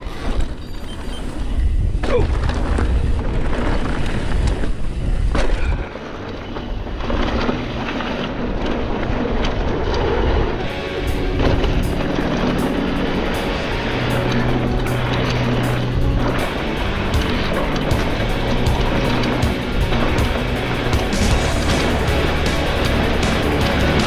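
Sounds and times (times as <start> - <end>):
short falling squeaks: 0.0 - 2.2
bike tyre and trail noise: 0.0 - 24.0
wind rumble on microphone: 0.0 - 24.0.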